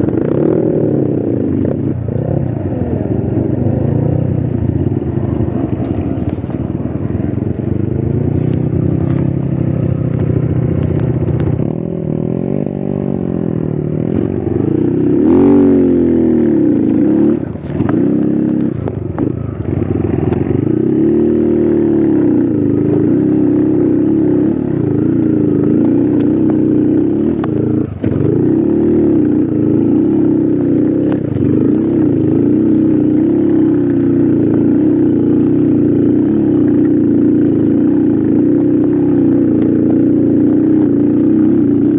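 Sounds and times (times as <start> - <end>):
motorcycle engine revving: 0.0 - 41.9
motorcycle clacks on rough ground: 3.6 - 11.9, 16.6 - 21.4, 22.8 - 41.9.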